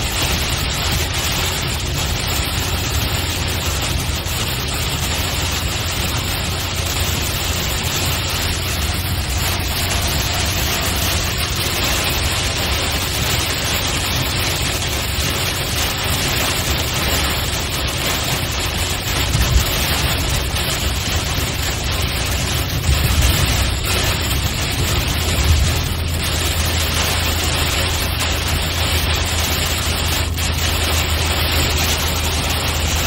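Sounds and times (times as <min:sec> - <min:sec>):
car road noise: 0:00.0 - 0:33.0
rain on car: 0:00.0 - 0:33.0.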